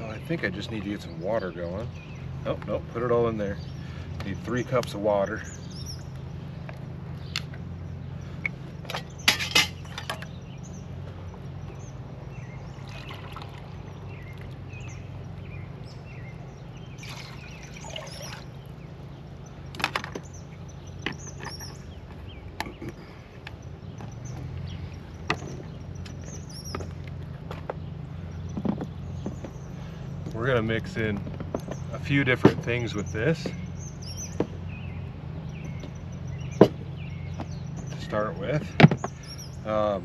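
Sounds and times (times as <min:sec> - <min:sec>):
cookware clanking: 0:09.3 - 0:10.2.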